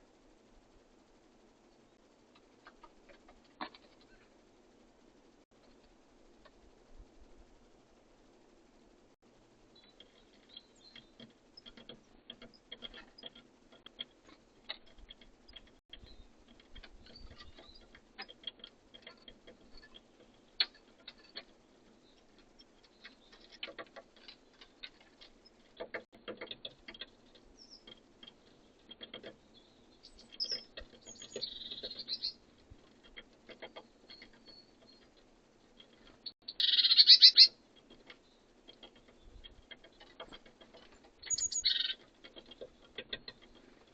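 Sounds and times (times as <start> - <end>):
birds pecking clicks and taps: 2.3 - 4.2, 9.9 - 36.3, 37.7 - 43.9
bird calls: 9.8 - 43.9.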